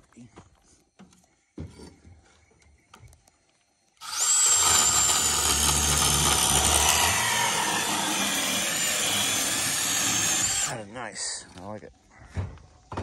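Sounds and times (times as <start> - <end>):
cordless pipe cutter whining: 4.0 - 10.8.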